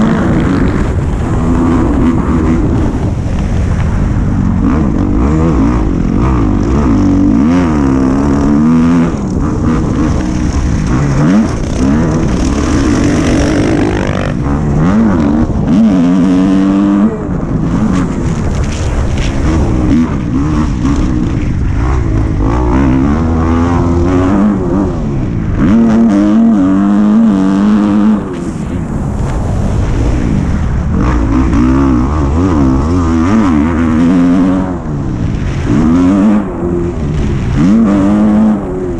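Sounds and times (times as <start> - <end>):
dirt bike engine revving: 0.0 - 29.4, 30.5 - 38.9.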